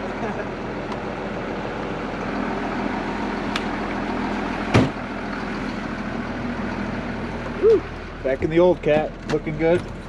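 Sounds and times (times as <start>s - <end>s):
heavy vehicle engine idling: 0.0s - 10.0s
loud thump: 4.7s - 5.0s.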